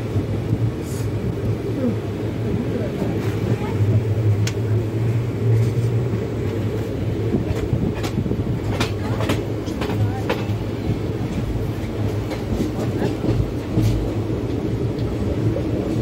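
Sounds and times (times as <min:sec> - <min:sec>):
train wheels rumbling on track: 0:00.0 - 0:16.0
wheels clicking over rail joints: 0:05.5 - 0:16.0.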